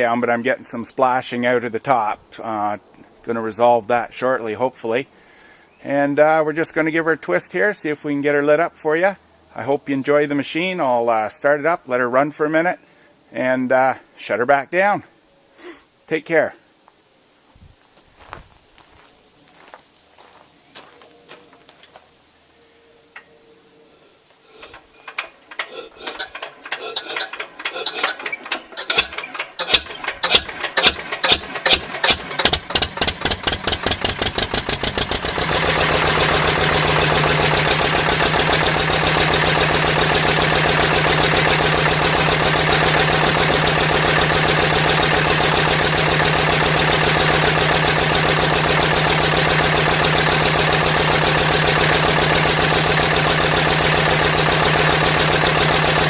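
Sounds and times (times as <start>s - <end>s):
diesel engine hand-cranked and starting: 24.5s - 56.0s.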